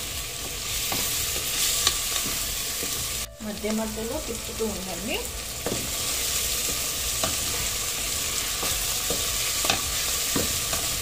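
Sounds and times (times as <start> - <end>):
onion and tomato sizzling in oil: 0.0 - 11.0
spatula scraping and knocking pot: 8.5 - 11.0.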